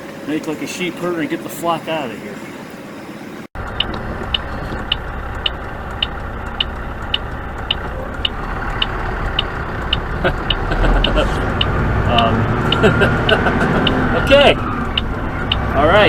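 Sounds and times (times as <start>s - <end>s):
truck engine running: 0.0s - 16.0s
turn signal clicking: 3.7s - 15.8s.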